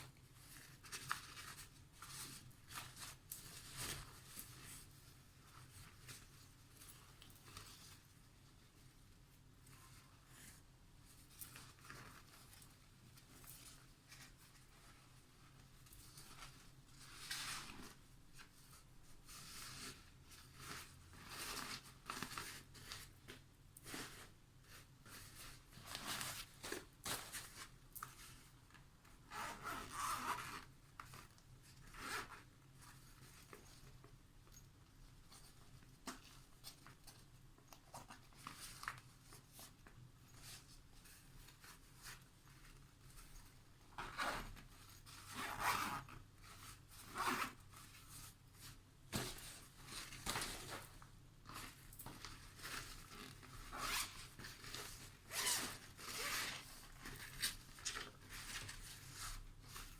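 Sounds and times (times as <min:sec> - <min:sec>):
zippers pulled open and shut: 0:29.3 - 0:30.6, 0:45.3 - 0:46.1, 0:53.7 - 0:54.2, 0:55.3 - 0:56.7
fabric rubbing: 0:52.8 - 0:57.0.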